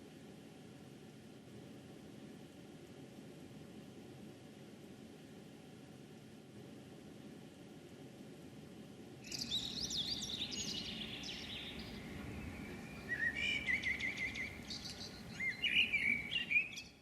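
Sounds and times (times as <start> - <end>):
songbird singing: 9.2 - 17.0
heavy rain hiss: 9.5 - 16.4.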